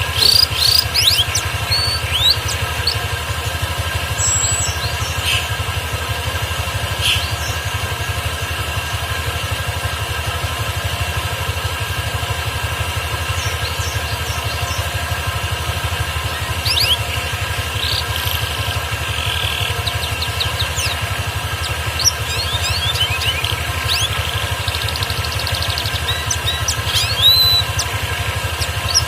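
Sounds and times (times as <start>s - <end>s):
canary chirping: 0.0s - 5.5s, 13.3s - 29.0s
low pulsing mechanical hum: 0.0s - 29.0s.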